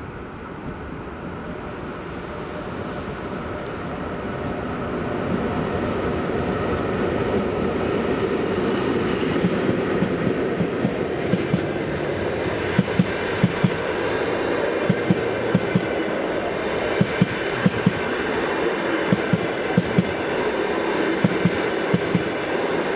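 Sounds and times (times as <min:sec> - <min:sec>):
train passing rumble: 0:00.0 - 0:22.9
wheels knocking over rail joints: 0:12.7 - 0:14.0, 0:14.8 - 0:18.2, 0:19.1 - 0:20.4.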